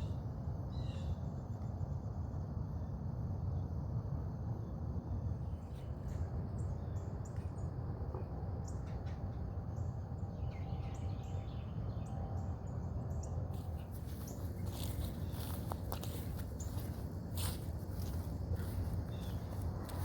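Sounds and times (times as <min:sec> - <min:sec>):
low background rumble: 0:00.0 - 0:20.0
small birds chirping: 0:09.6 - 0:20.0.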